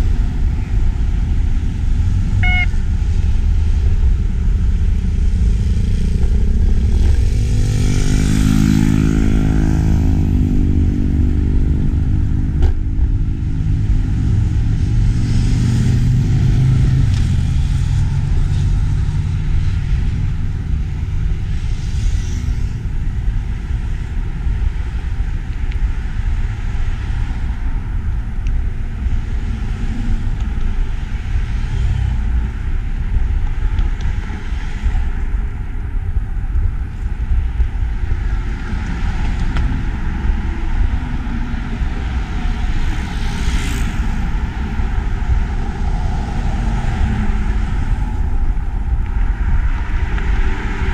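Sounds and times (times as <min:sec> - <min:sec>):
wind buffeting microphone: 0:00.0 - 0:50.9
vehicle engine passing by: 0:05.6 - 0:12.4.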